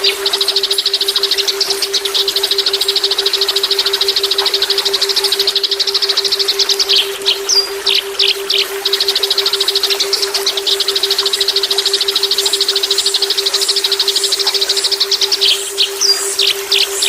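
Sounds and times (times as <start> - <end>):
songbird rapid trill: 0.0 - 17.0
steady low hum: 0.0 - 17.0.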